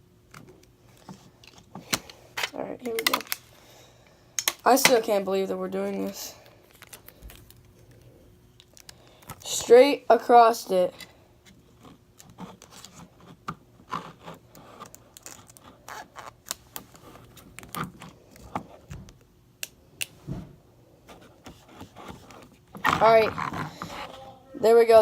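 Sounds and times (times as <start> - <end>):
tape and card rustling: 0.4 - 3.6, 4.4 - 9.7, 11.5 - 19.2.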